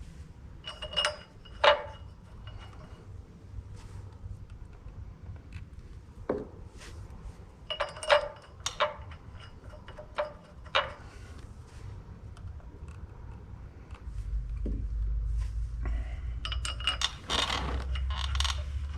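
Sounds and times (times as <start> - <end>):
low hum: 0.0 - 18.9
metal clinks of bolts and tools: 0.6 - 3.2, 7.6 - 11.4, 16.3 - 18.9.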